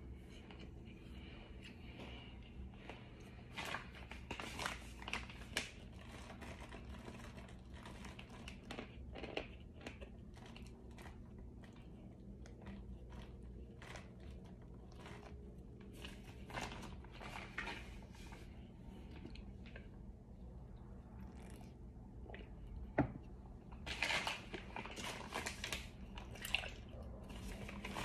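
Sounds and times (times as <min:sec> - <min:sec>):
person chewing crunchy food: 0:00.1 - 0:20.4.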